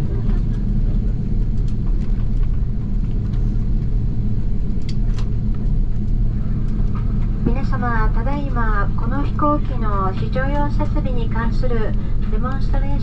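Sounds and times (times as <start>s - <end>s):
jet cabin rumble: 0.0s - 13.0s.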